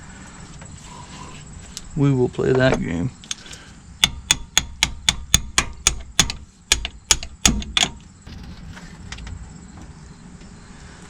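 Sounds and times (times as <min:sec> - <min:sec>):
hammer tapping on steel: 0:04.0 - 0:08.0.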